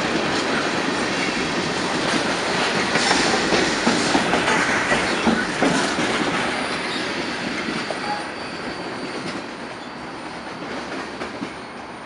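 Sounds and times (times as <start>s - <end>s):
freight train rumbling and clattering: 0.0s - 12.0s
high wheel squeal: 6.5s - 12.0s.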